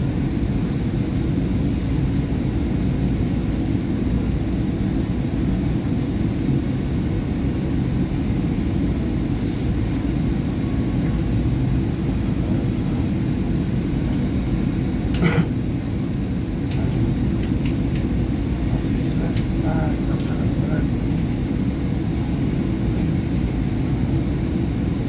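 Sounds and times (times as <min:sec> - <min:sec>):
train rumbling: 0:16.7 - 0:21.4.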